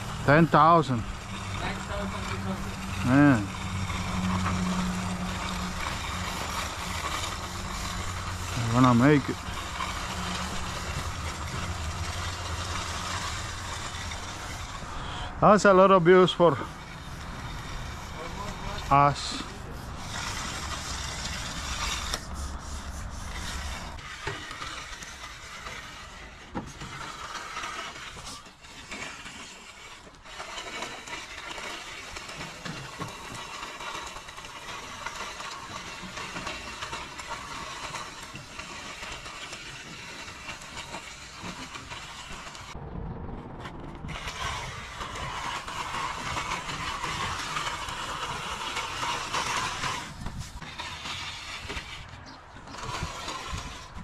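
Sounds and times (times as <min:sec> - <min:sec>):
metal edger scraping wet concrete: 0:00.0 - 0:42.8, 0:43.6 - 0:54.0.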